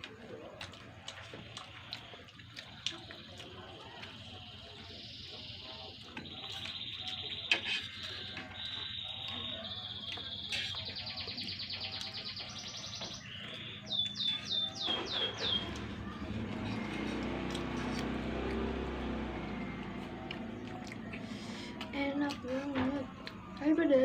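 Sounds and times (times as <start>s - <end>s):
songbird singing trills: 2.7s - 17.0s.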